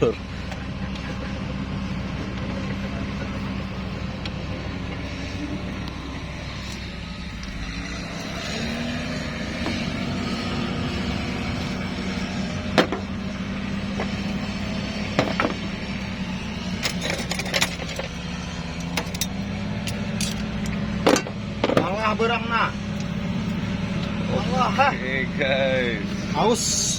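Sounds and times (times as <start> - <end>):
engine idling: 0.0 - 26.9
metallic clicks and knocks: 16.8 - 18.2, 18.8 - 21.9.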